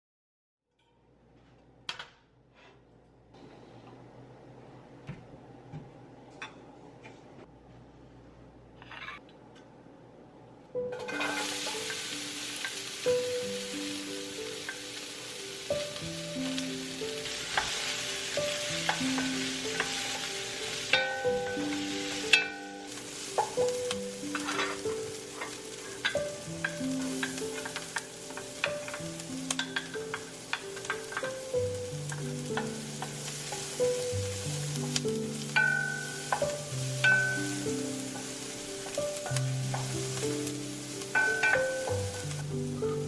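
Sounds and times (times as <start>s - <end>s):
food sizzling in a frying pan: 10.9s - 43.0s
utensil scraping a pan: 18.8s - 29.0s.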